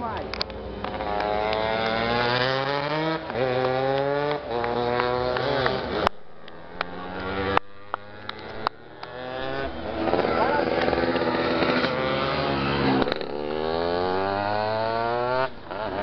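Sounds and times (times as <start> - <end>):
racing motorcycle engines revving: 0.0 - 16.0
sharp clicks: 3.6 - 9.3.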